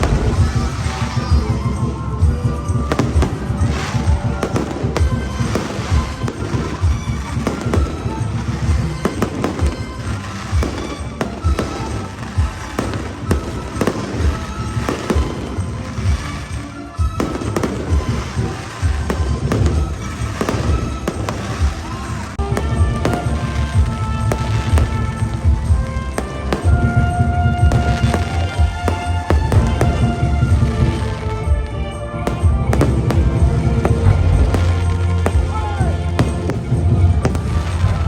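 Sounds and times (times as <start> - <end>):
fireworks booms and bangs: 0.0 - 38.0
music playing: 0.0 - 38.0.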